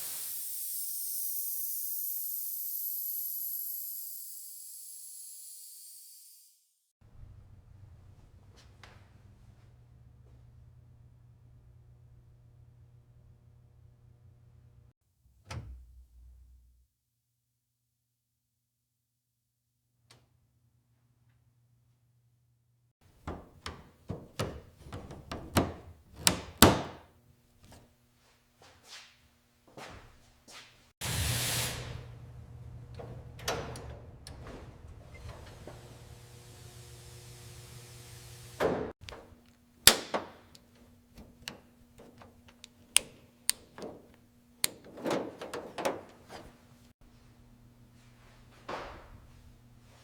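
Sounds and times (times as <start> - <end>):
knocks and clatters of hand work: 23.1 - 27.0.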